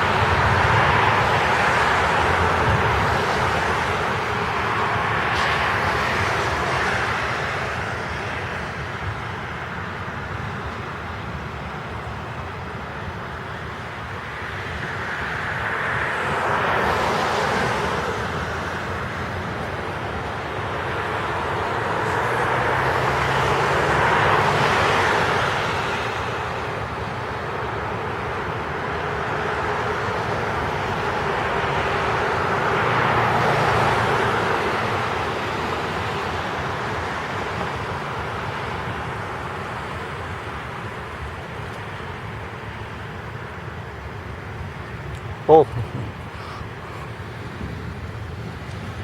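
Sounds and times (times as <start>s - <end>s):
heavy rain hissing: 45.3s - 49.0s.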